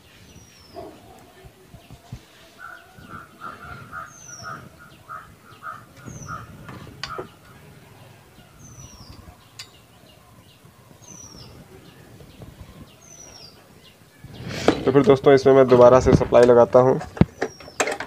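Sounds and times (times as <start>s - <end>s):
rapid bird calls: 1.8s - 14.9s.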